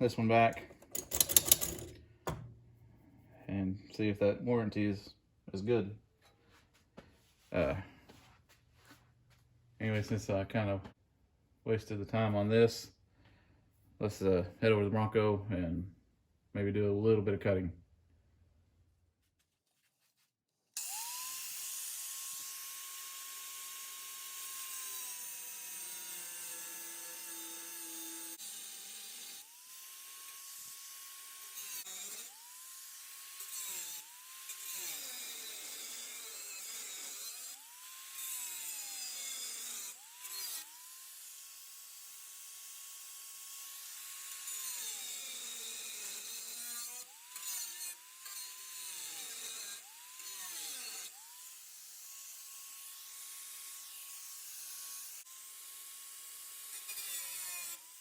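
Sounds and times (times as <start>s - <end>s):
power tool cutting sheet metal: 0.6s - 1.9s, 20.8s - 58.0s.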